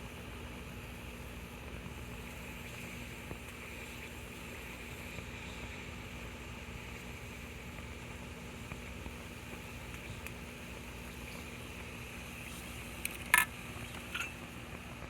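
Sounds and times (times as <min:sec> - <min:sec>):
alcohol stove hissing: 0:00.0 - 0:15.0.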